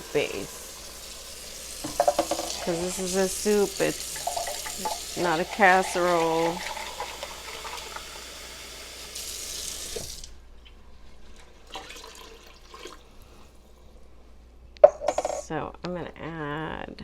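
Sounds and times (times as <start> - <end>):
faucet water filling a can: 0.0 - 10.3, 11.7 - 13.1.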